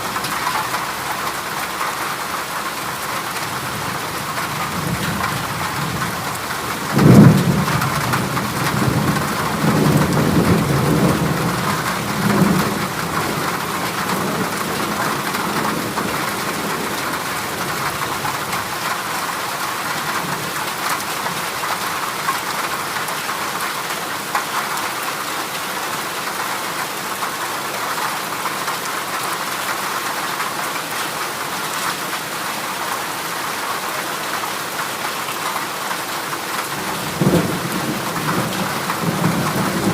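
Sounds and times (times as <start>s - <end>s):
heavy rain on metal roof: 0.0s - 39.9s
thunder rumbling: 3.7s - 18.7s, 36.7s - 39.9s.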